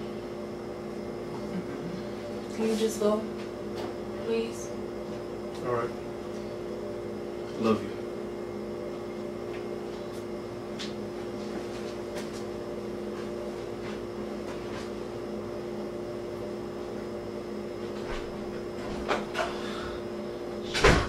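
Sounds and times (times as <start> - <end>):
appliance hum: 0.0 - 21.0.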